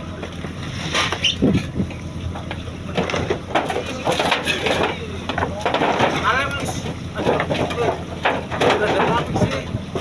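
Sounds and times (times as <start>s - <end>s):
boat engine running: 0.0s - 10.0s
knocks and clatter on deck: 2.4s - 10.0s.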